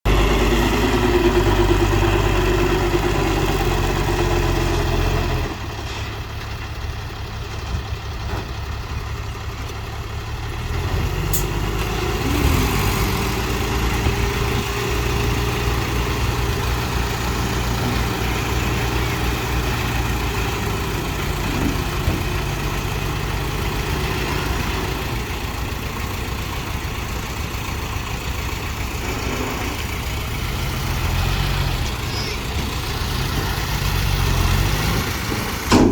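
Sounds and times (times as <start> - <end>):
dump truck diesel engine running: 0.0 - 35.9.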